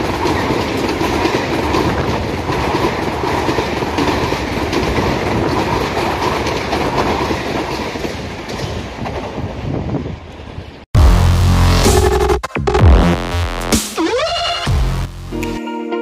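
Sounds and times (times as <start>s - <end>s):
clickety-clack over rail joints: 0.0s - 10.8s
train wheels rushing on rail: 0.0s - 10.8s.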